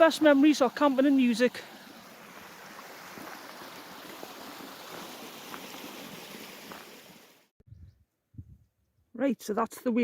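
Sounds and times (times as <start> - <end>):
stream rushing over stones: 0.0 - 7.5.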